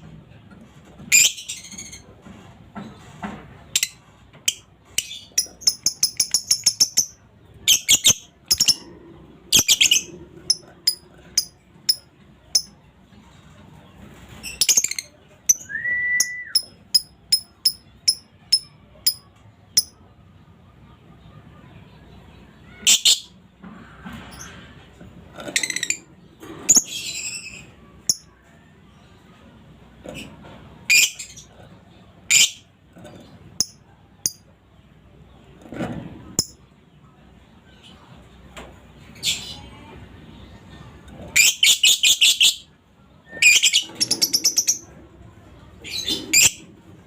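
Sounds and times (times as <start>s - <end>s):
lovebird chattering and chirping: 3.8s - 8.8s, 9.5s - 12.8s, 16.6s - 19.2s, 19.8s - 20.0s, 26.7s - 28.3s, 32.3s - 32.6s, 41.4s - 42.7s, 43.4s - 44.9s, 45.8s - 46.6s.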